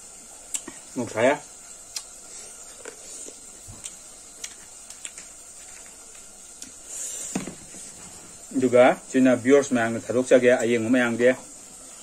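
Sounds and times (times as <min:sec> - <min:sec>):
steady hiss: 0:00.0 - 0:12.0
wet mouth clicks and smacks: 0:01.9 - 0:02.1.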